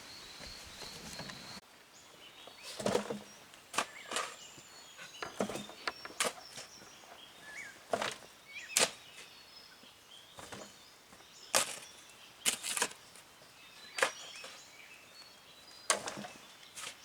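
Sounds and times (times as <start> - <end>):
faint bird chirps: 0.0 - 7.8.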